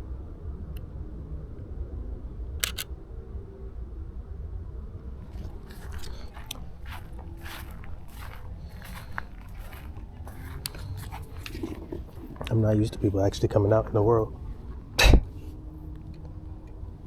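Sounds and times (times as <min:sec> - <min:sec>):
camera shutter click: 0:02.6 - 0:02.9
footsteps on gravel: 0:05.3 - 0:12.5.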